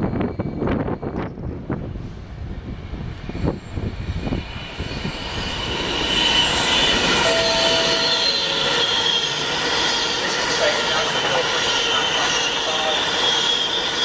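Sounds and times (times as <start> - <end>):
train rumble: 0.0 - 14.0
high-pitched metallic squeal: 3.4 - 14.0
train knocks: 7.1 - 10.2.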